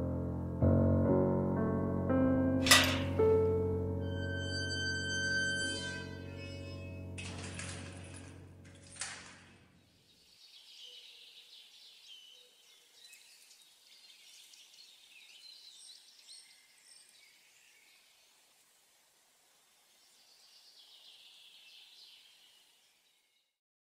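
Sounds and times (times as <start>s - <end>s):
soft instrumental music: 0.0s - 9.5s
small birds chirping: 9.8s - 18.9s, 19.5s - 23.4s.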